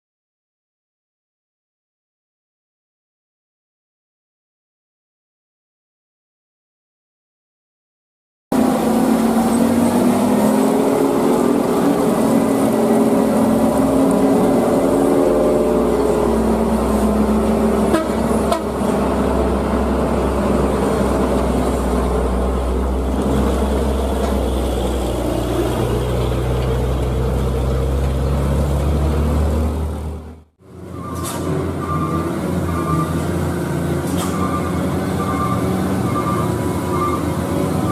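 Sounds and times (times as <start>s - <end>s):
heavy truck engine under load: 8.5s - 37.9s.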